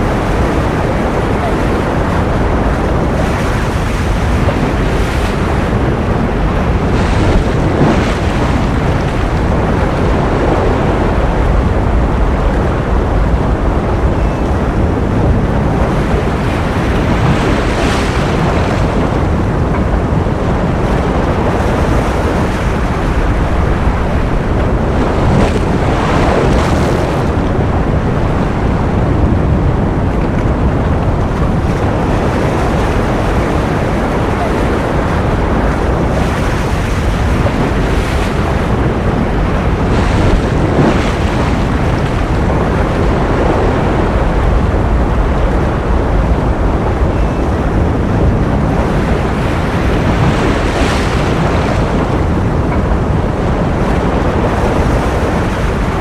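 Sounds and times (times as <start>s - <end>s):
ocean surf rushing: 0.0s - 56.0s.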